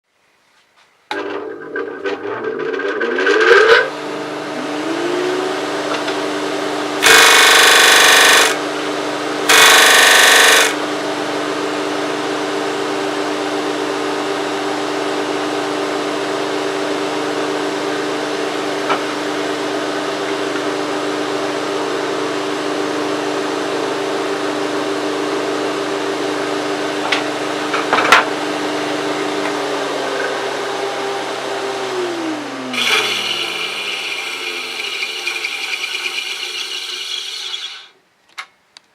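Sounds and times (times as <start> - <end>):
motor winding down: 2.5 - 6.2, 7.0 - 8.6, 9.5 - 10.8, 31.9 - 37.9
disc sander motor hum: 6.9 - 8.8, 9.5 - 10.8, 32.6 - 37.9
wood sanding on disc: 32.8 - 37.9.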